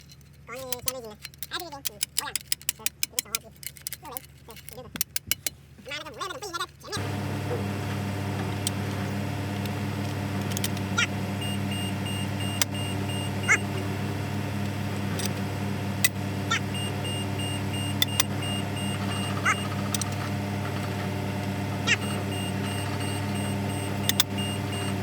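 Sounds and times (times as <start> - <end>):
low machine hum: 7.0 - 25.0
broken high-pitched tone: 9.2 - 25.0
sharp metallic clicks: 16.0 - 20.9, 21.9 - 25.0.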